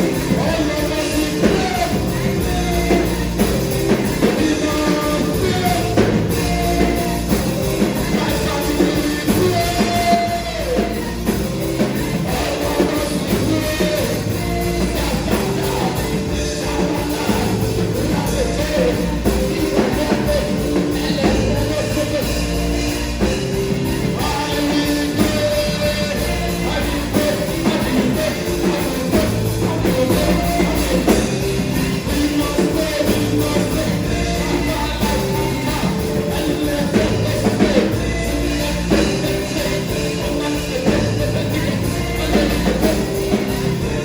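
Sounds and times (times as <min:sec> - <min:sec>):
bass line: 0:00.0 - 0:44.0
person singing: 0:00.0 - 0:44.0
worship band music: 0:00.0 - 0:44.0.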